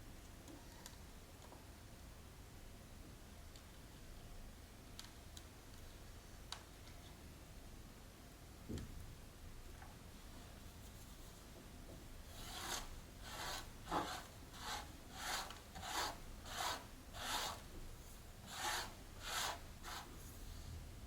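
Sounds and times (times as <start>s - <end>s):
hand rubbing or scraping strokes: 12.3s - 20.6s.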